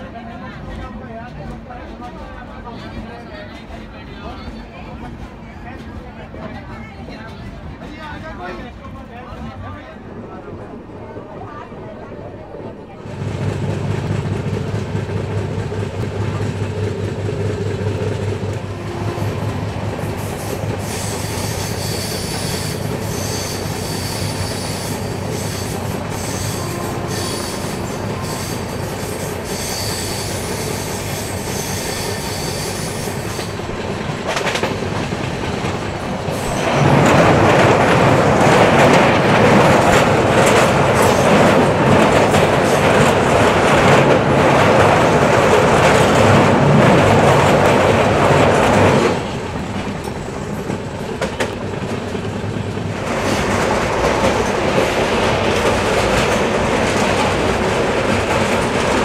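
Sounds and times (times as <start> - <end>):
train wheels rumbling on rails: 0.0 - 59.0
faint wheel squeal: 20.4 - 33.6.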